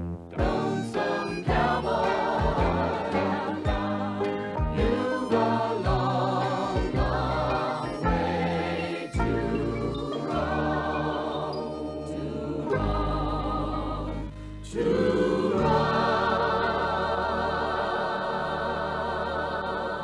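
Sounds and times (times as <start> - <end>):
instrumental accompaniment: 0.0 - 20.0
choir singing held chords: 0.3 - 20.0.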